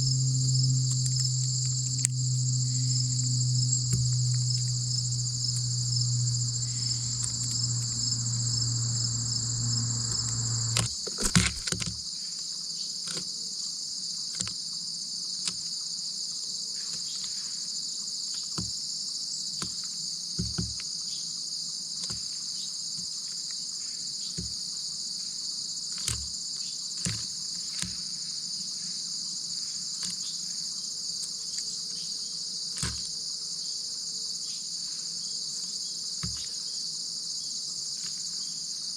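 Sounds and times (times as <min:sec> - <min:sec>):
insects chirring: 0:00.0 - 0:10.9
low hum: 0:00.0 - 0:10.9.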